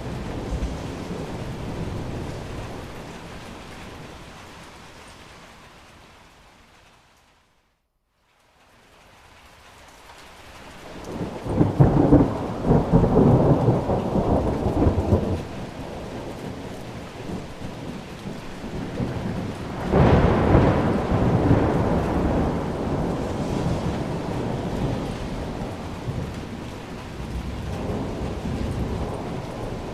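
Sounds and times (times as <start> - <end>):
thunder rolling: 0.0 - 4.6, 10.9 - 29.9
rain: 0.0 - 29.9.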